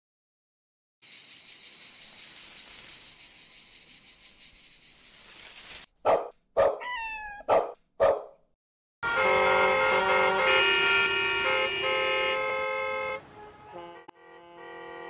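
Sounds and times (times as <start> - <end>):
night insects chirring: 1.0 - 5.8
dog barking: 6.0 - 8.4.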